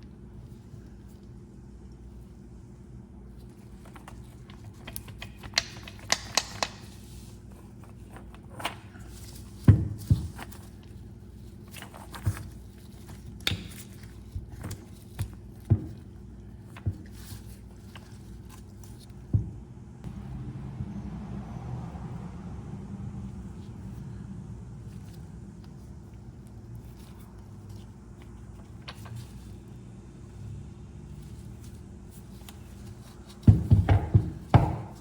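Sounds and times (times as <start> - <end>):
steady low hum: 0.0 - 35.0
clicks and knocks of handled parts: 3.6 - 11.0.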